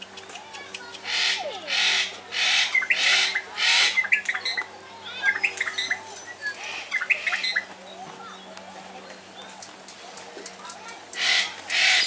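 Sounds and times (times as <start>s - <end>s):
parrot squawks: 1.1s - 4.2s, 11.2s - 12.0s
birds chirping and whistling: 1.1s - 4.6s, 5.2s - 7.6s.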